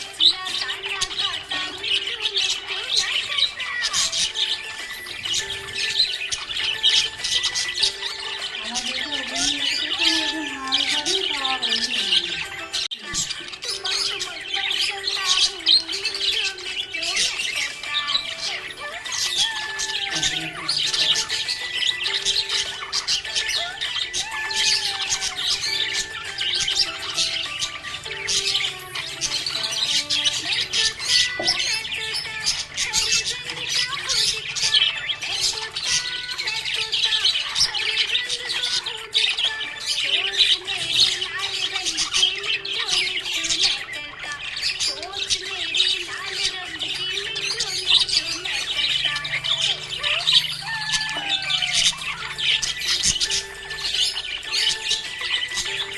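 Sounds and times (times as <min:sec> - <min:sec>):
background music of held notes: 0:00.0 - 0:55.9
budgerigars chirping and warbling: 0:00.0 - 0:55.9
melody: 0:48.6 - 0:55.9.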